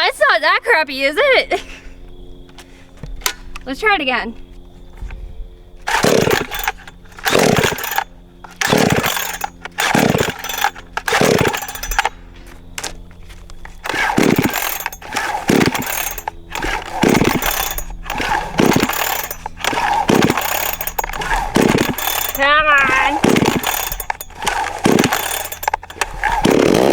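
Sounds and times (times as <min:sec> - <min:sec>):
steady low hum: 0:01.4 - 0:26.9
chainsaw starter cord pulls: 0:05.8 - 0:26.9.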